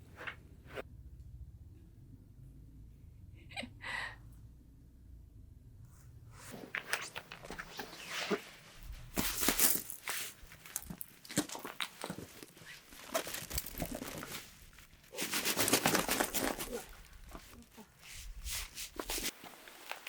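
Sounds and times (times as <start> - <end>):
rustling and crinkling with clicks: 6.4 - 20.0.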